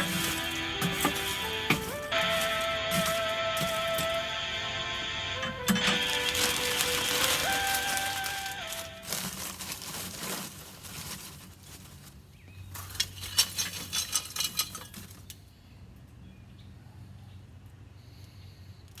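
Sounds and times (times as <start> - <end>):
charcoal clinking and rattling: 0.0 - 4.6, 5.4 - 15.4.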